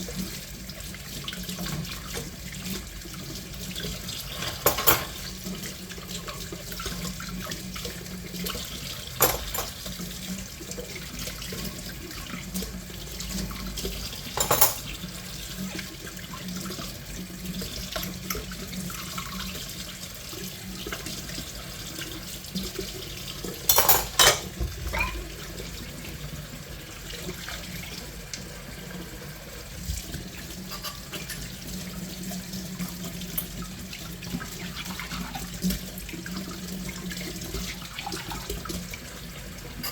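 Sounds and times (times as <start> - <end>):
tap water running into sink: 0.0 - 39.9
dishes clinking: 4.3 - 5.3, 9.1 - 9.8, 14.3 - 15.0, 23.7 - 25.3, 30.7 - 31.5.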